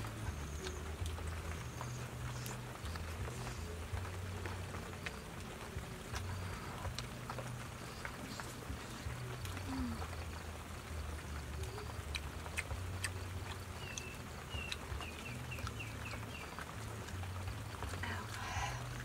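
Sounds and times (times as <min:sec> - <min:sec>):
small bird chirping: 0:11.5 - 0:17.3.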